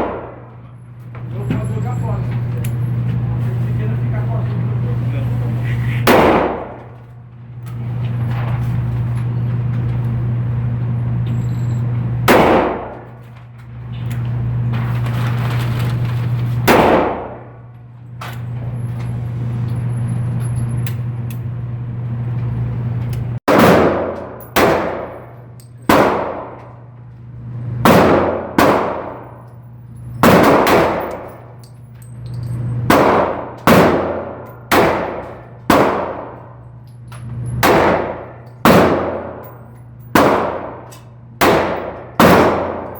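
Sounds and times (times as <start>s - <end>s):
steady low hum: 0.0s - 42.9s
handgun shots echoing: 6.1s - 7.0s, 12.3s - 13.1s, 23.5s - 26.7s, 27.9s - 29.3s, 30.2s - 31.4s, 32.9s - 36.4s, 37.6s - 42.9s.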